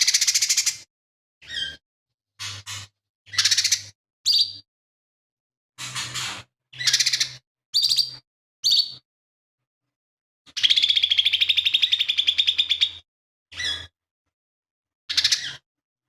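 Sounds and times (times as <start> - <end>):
bird singing harsh chattering phrases: 0.0 - 1.8, 2.4 - 4.7, 6.8 - 9.0, 10.5 - 13.9, 15.1 - 15.6.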